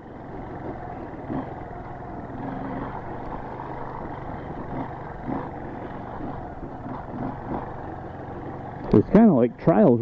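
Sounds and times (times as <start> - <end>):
motorcycle engine running at low speed: 0.0 - 10.0
motorcycle bumps: 2.9 - 9.3.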